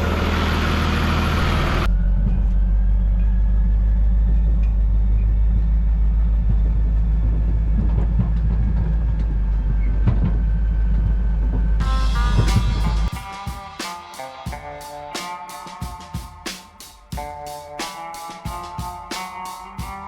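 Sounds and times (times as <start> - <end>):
vehicle engine rumbling: 0.0 - 13.3.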